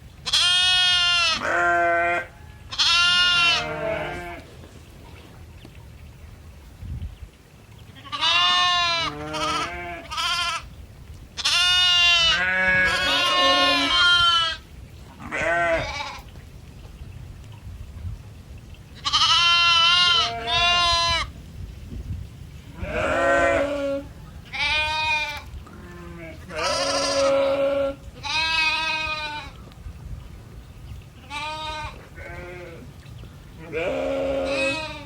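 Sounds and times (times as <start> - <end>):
farm animals bleating: 0.2 - 4.5, 8.0 - 10.7, 11.4 - 14.6, 15.2 - 16.2, 19.0 - 21.3, 22.7 - 29.6, 31.2 - 32.9, 33.6 - 35.0.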